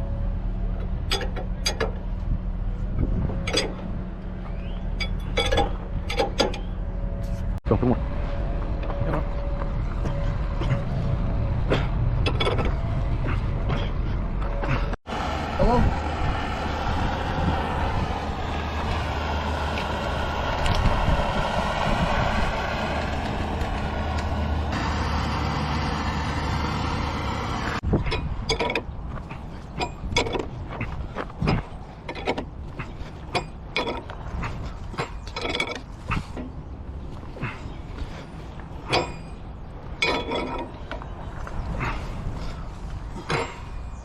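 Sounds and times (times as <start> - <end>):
metal creaking: 0.0 - 15.0, 17.0 - 44.0
heavy machinery running: 0.0 - 34.3
metallic clicks and knocks: 0.8 - 2.1, 3.3 - 3.9, 4.9 - 6.8, 27.9 - 29.0, 29.7 - 32.6, 33.3 - 34.2, 40.0 - 41.0.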